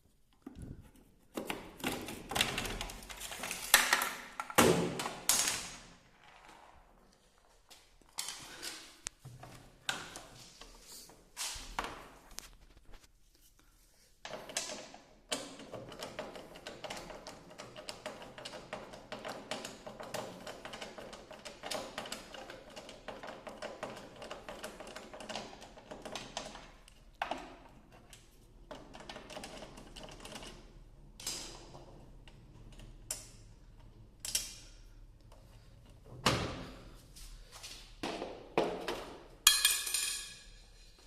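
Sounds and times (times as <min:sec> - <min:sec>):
rapid clicking and rattling: 0:14.3 - 0:27.4.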